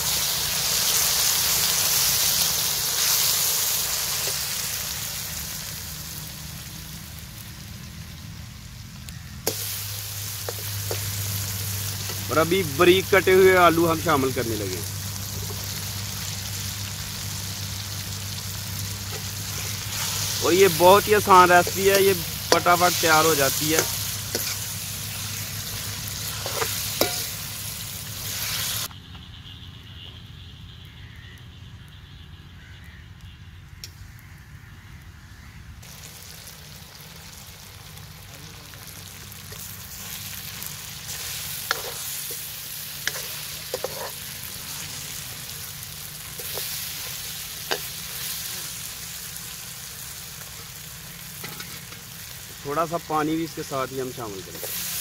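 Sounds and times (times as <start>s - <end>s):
vegetables sizzling in hot oil: 0.0s - 28.9s, 35.8s - 55.0s
ladle stirring and scraping pan: 9.5s - 12.3s, 21.2s - 28.9s, 41.1s - 45.1s, 46.3s - 48.7s, 51.4s - 52.1s, 54.5s - 55.0s.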